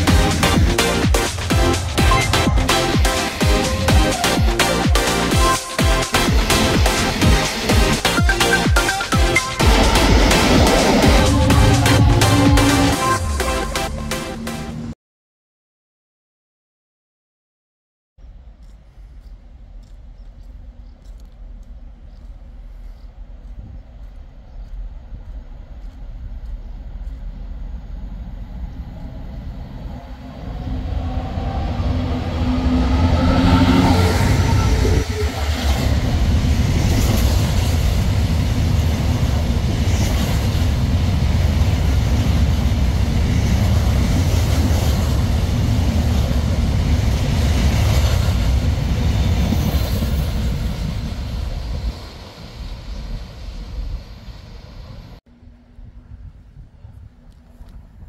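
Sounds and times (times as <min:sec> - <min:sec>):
train engine rumble: 0:00.0 - 0:14.9, 0:18.2 - 0:58.0.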